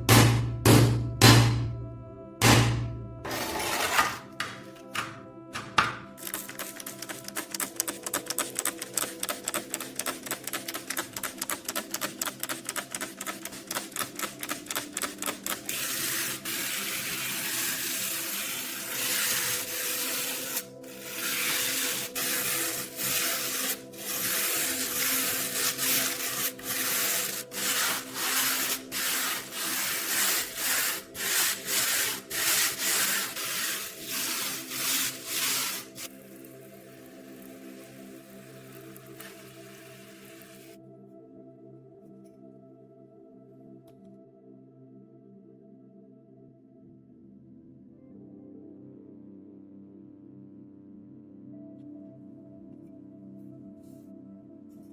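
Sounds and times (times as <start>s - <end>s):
background music: 0.0s - 54.9s
scrubbing knife blade: 6.3s - 36.1s.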